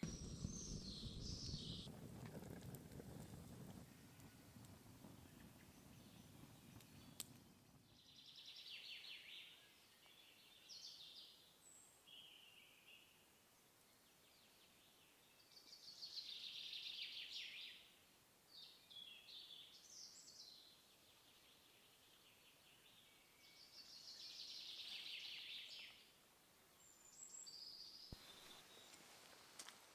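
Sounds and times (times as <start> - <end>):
low rumble: 0.0 - 7.2
songbirds singing faintly: 0.0 - 29.9.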